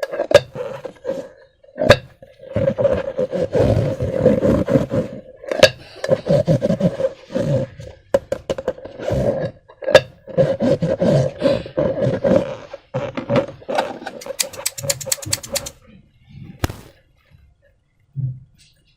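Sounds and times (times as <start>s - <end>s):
rubber balloon squeaks: 2.4s - 5.2s, 6.0s - 8.1s, 10.2s - 15.7s
sharp clicks: 14.2s - 15.7s.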